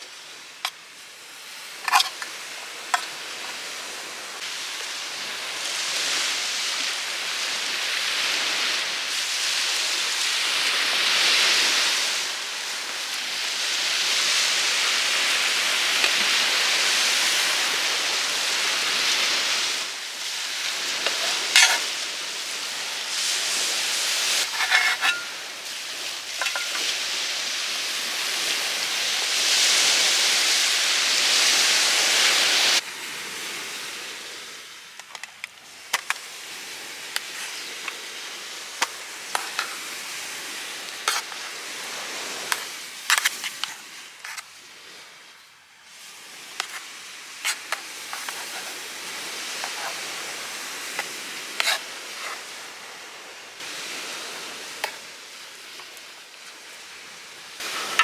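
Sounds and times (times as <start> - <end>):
food sizzling in a frying pan: 13.4 - 32.8, 36.0 - 44.4, 46.0 - 52.4.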